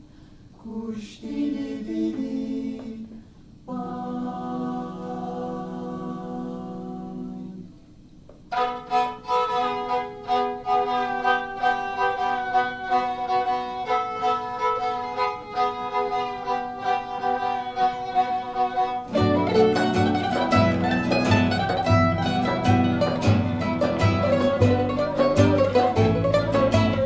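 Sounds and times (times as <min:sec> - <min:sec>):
a cappella vocal chord: 0:00.6 - 0:07.8
bowed fiddle melody: 0:08.5 - 0:27.0
plucked mandolin and guitar: 0:08.5 - 0:27.0.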